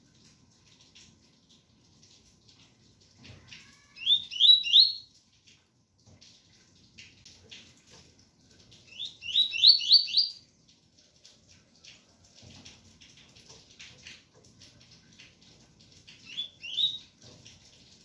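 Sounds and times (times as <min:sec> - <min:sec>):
faint rain: 0:00.0 - 0:18.0
bird singing whistled notes: 0:04.0 - 0:05.0, 0:08.9 - 0:10.4, 0:16.3 - 0:17.0.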